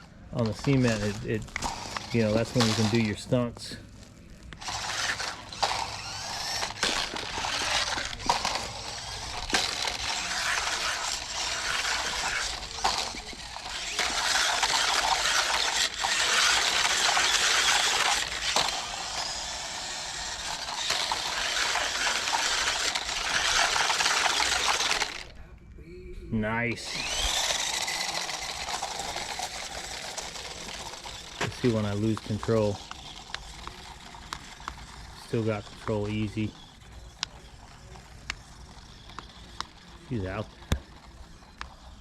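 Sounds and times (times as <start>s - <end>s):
toy truck rolling on cement: 0.0s - 25.5s, 26.7s - 42.0s.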